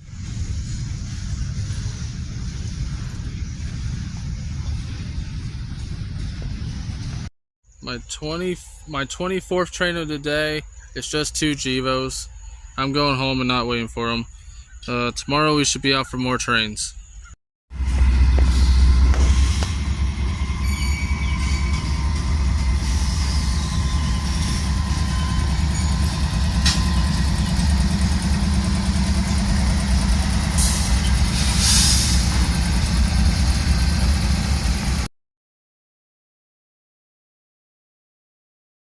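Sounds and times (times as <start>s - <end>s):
vehicle rumble: 0.0s - 7.3s, 17.7s - 35.1s.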